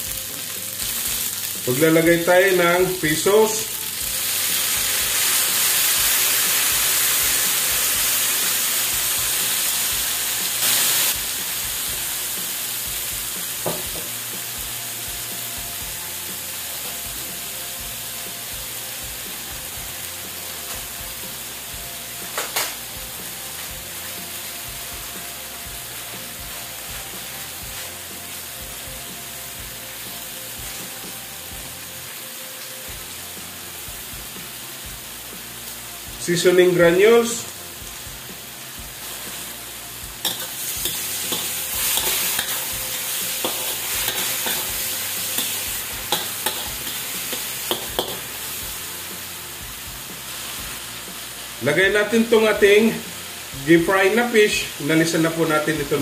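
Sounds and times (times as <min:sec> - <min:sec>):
sauce sizzling in a hot wok: 0:00.0 - 0:56.0.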